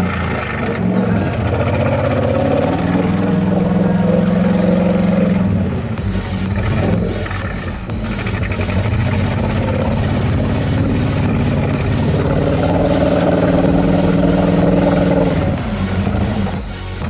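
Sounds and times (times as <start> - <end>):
pickup truck engine running hard: 0.0 - 17.0.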